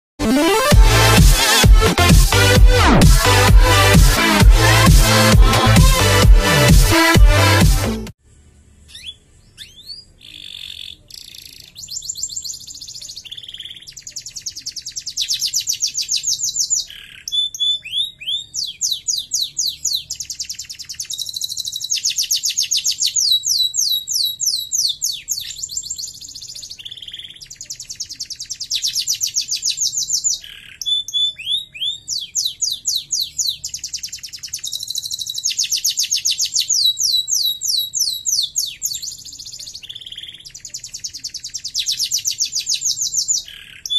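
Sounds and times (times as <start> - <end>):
canary singing fast trills: 8.8 - 43.9.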